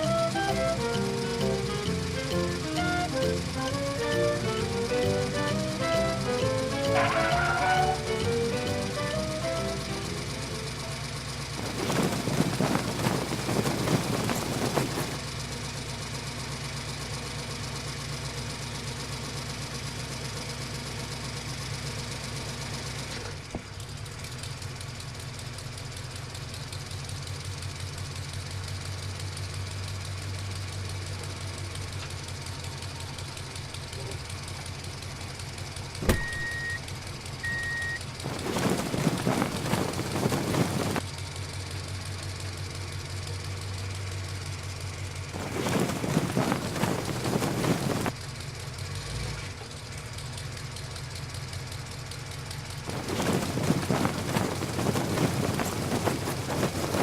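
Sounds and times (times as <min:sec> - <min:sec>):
vehicle engine idling: 0:00.0 - 0:57.0
short high beeps: 0:36.1 - 0:36.8, 0:37.5 - 0:38.0.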